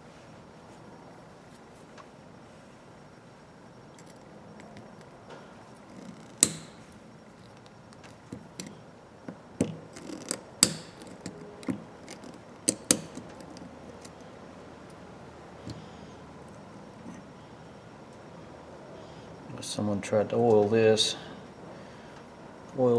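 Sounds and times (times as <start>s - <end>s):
ratchet metal clicks and clacks: 10.0s - 14.1s.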